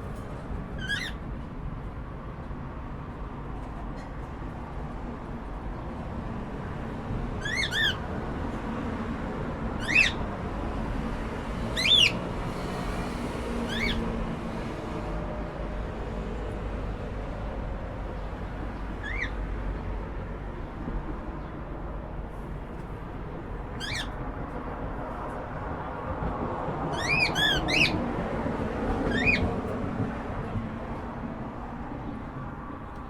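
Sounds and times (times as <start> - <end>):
cockatiel chirping: 7.4 - 8.0, 9.8 - 10.2, 11.8 - 12.2, 13.7 - 14.0, 23.8 - 24.1, 27.0 - 28.0, 29.1 - 29.4.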